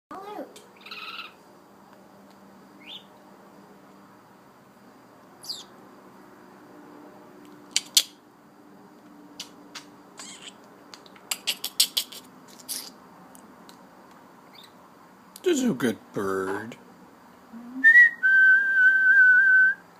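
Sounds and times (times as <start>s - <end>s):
bird chirps: 0.8s - 1.4s, 2.8s - 3.1s, 5.4s - 5.7s, 9.4s - 13.0s, 14.5s - 14.8s
sharp clicks: 7.7s - 8.2s.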